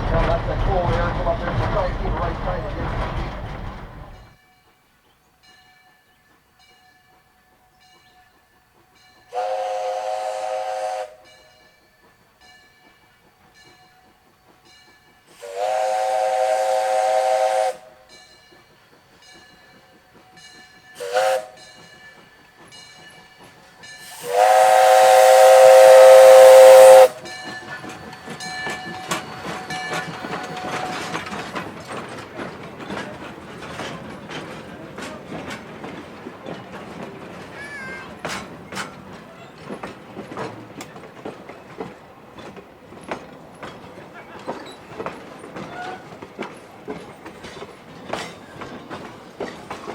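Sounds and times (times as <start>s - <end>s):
train clicking and clattering: 0.0s - 49.9s
steam locomotive whistle blasts: 9.3s - 11.4s, 15.3s - 18.1s, 21.0s - 21.8s, 24.0s - 27.4s, 29.1s - 31.3s.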